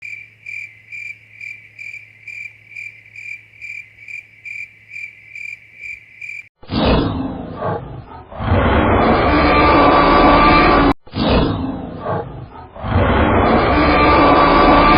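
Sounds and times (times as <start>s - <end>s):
cricket chirping: 0.0s - 6.5s.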